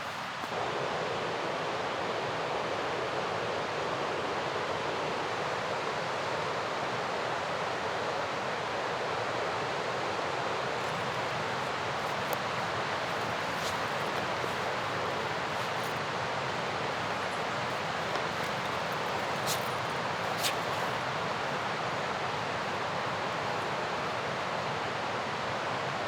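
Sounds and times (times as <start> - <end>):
river water rushing: 10.4 - 26.0.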